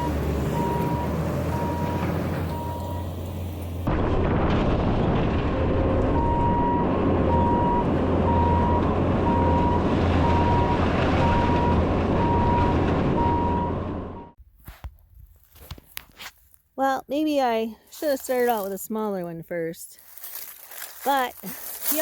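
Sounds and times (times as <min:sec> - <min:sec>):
reversing alarm beeping: 0:00.0 - 0:03.3, 0:06.2 - 0:14.4
diesel engine droning under load: 0:00.0 - 0:14.4.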